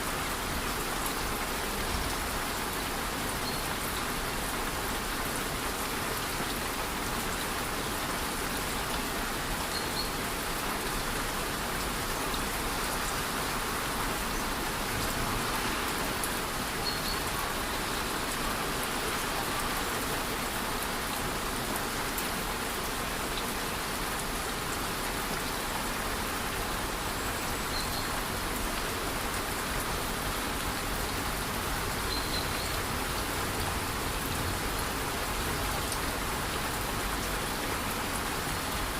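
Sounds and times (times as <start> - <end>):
light rain falling: 0.0 - 38.9
waterfall cascading: 0.0 - 38.9.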